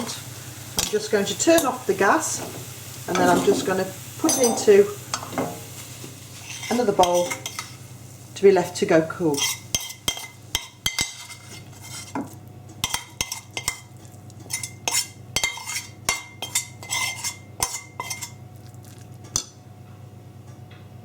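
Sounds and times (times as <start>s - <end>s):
low steady hum: 0.0s - 21.0s
metal spoon scraping and tapping pan: 0.8s - 1.8s, 4.2s - 5.6s, 6.4s - 7.8s, 9.3s - 18.4s.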